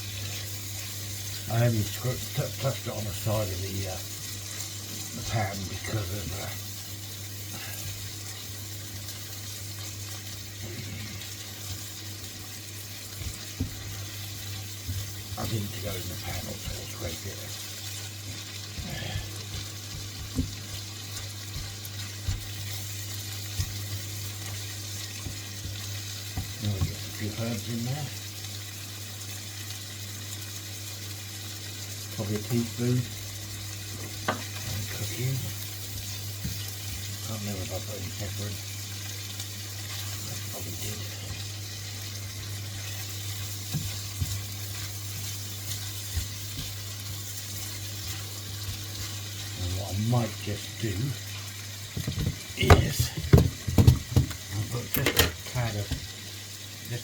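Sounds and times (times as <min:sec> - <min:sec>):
food sizzling in a wok: 0:00.0 - 0:57.0
utensil knocking against pan: 0:52.0 - 0:56.1.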